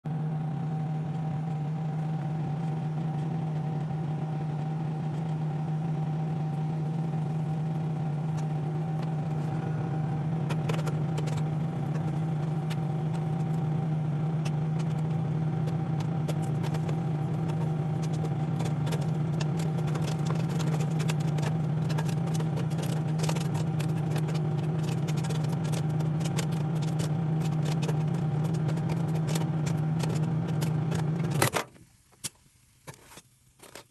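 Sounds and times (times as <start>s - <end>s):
microwave oven humming: 0.1s - 32.8s
popcorn popping: 8.1s - 33.9s.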